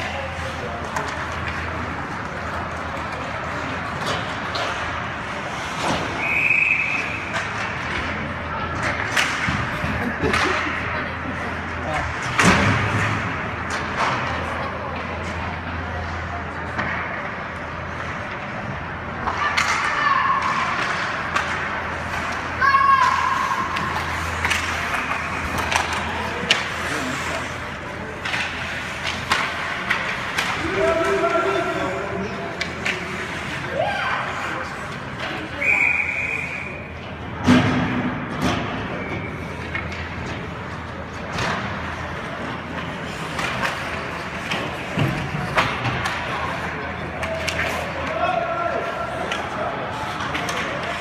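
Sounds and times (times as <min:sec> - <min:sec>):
hubbub of a game: 0:00.0 - 0:51.0
murmur of spectators: 0:00.0 - 0:51.0
referee's whistle: 0:06.2 - 0:07.2, 0:35.6 - 0:36.8.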